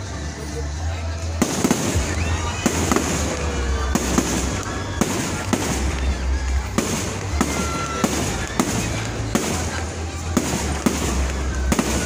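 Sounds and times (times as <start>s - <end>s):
fireworks crackling: 0.0s - 12.0s
fireworks bangs: 1.3s - 12.0s.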